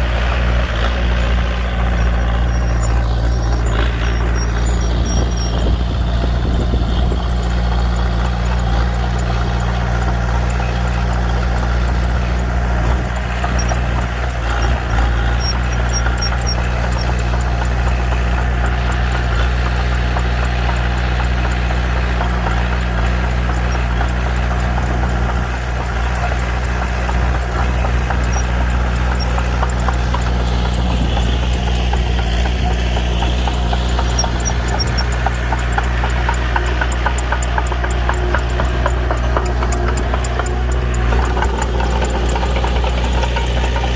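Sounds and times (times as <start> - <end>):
bulldozer diesel engine running: 0.0 - 43.9.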